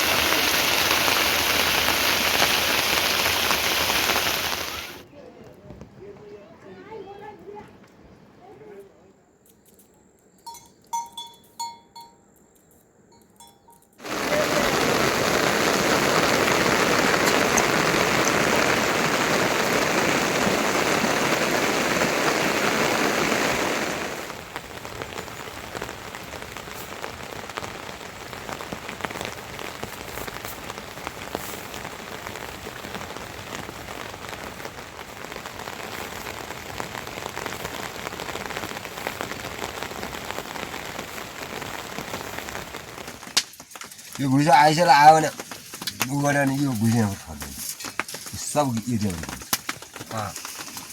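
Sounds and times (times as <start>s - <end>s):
rain: 0.0s - 5.1s, 14.0s - 50.9s
raindrops pattering: 0.0s - 5.1s, 14.0s - 50.9s.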